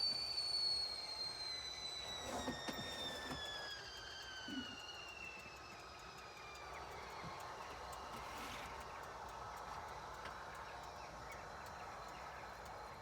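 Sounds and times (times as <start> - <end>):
kettle whistle sliding down: 0.0 - 5.4.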